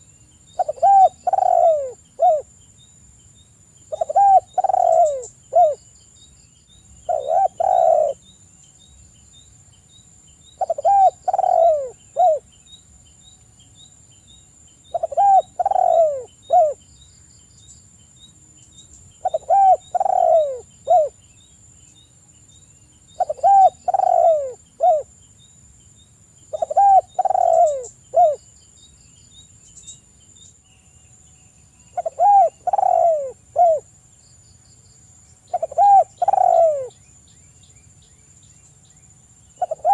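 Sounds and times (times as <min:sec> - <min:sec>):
dove cooing: 0:00.6 - 0:02.5, 0:03.9 - 0:05.8, 0:07.1 - 0:08.2, 0:10.6 - 0:12.5, 0:14.9 - 0:16.8, 0:19.2 - 0:21.2, 0:23.2 - 0:25.1, 0:26.5 - 0:28.4, 0:31.9 - 0:33.9, 0:35.5 - 0:37.0, 0:39.6 - 0:39.9.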